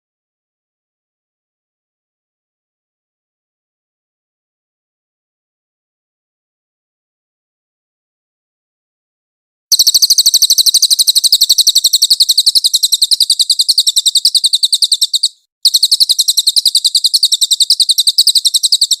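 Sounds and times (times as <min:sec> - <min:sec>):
bird singing rapid high notes: 0:09.7 - 0:19.0.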